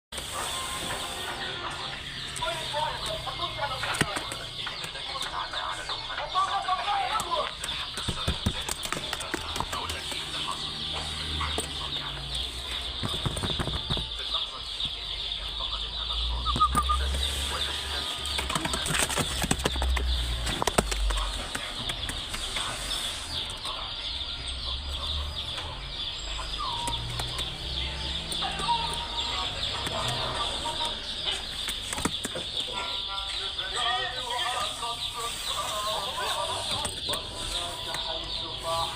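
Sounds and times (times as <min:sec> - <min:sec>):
pigeons cooing and clucking: 0:00.2 - 0:38.9.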